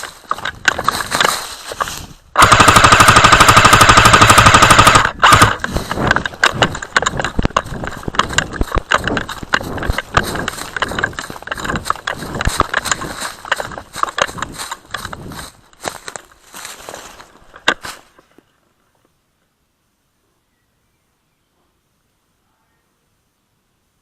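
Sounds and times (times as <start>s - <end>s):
irregular footsteps: 0.0s - 18.5s
rustling: 0.0s - 19.2s
airsoft gun full-auto burst: 2.4s - 5.7s.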